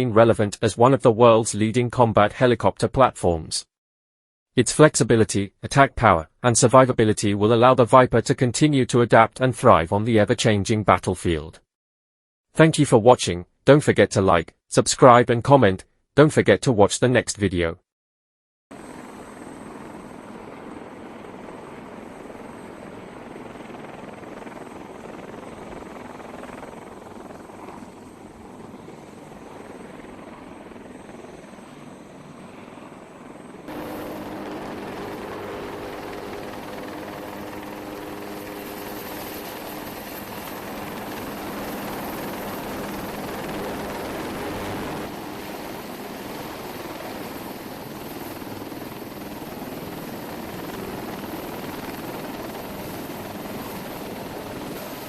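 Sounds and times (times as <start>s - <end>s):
helicopter rotor and turbine: 18.7s - 55.0s
steady droning hum: 33.7s - 38.3s.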